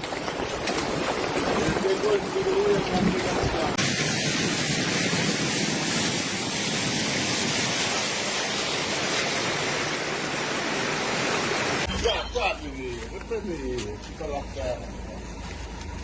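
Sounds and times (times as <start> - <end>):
rushing storm water: 0.0 - 11.9.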